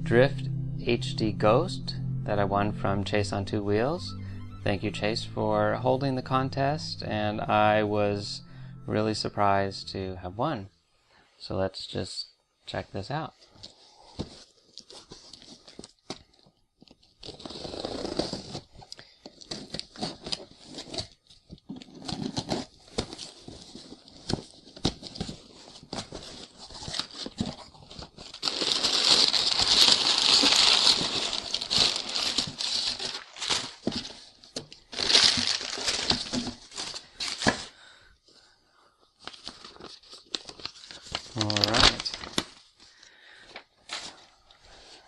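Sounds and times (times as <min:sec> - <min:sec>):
packaging rustling and crinkling: 0:13.6 - 0:37.7, 0:39.2 - 0:45.0
packaging tearing: 0:17.1 - 0:18.7, 0:21.9 - 0:34.3, 0:34.9 - 0:37.7, 0:39.2 - 0:42.7.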